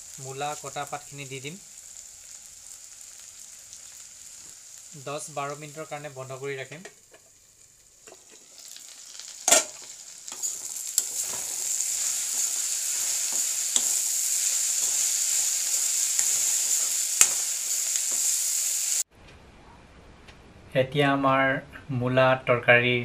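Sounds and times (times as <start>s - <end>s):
vegetables sizzling in oil: 0.0s - 19.1s
metal clinking on pan: 9.5s - 11.4s
metal spatula scraping pan: 9.5s - 18.3s.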